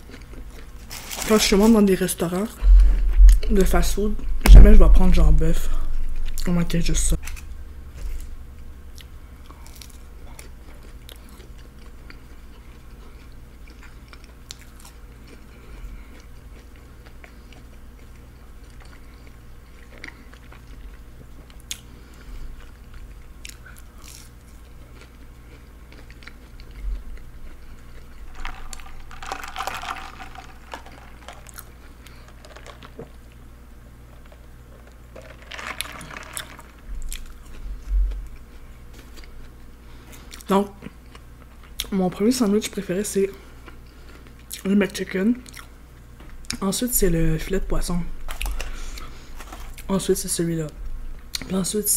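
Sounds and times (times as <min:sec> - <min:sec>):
low electrical hum: 0:00.0 - 0:51.9
crunchy chewing: 0:08.9 - 0:33.1.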